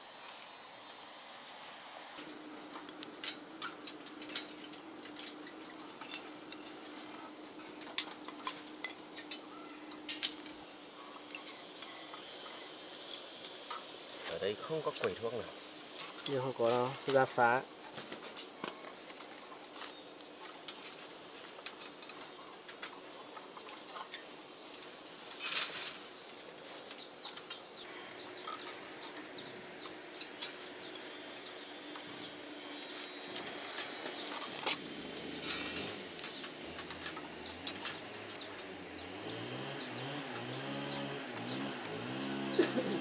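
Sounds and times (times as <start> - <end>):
steady background noise: 0.0 - 43.0
small bird chirping: 26.0 - 34.6, 35.7 - 43.0.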